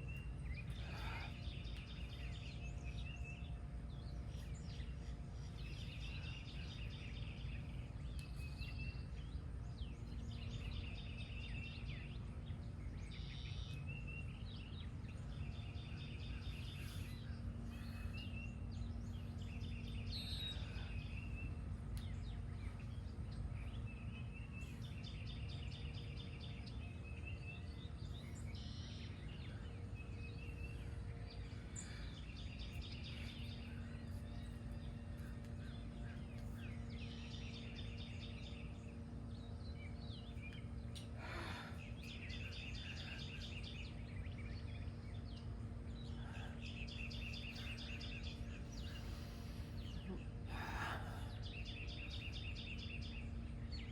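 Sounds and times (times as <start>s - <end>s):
low background rumble and hum: 0.0s - 53.9s
songbirds singing: 0.0s - 53.9s.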